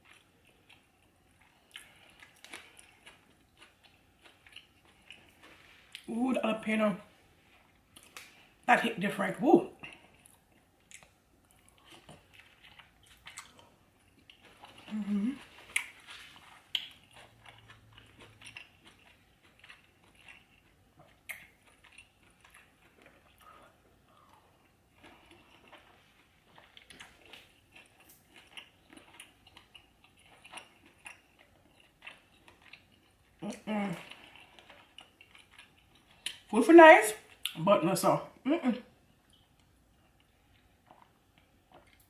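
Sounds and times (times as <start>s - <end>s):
person chewing crunchy food: 0.0s - 6.1s, 9.8s - 36.5s, 39.2s - 42.0s
person humming: 14.9s - 15.4s.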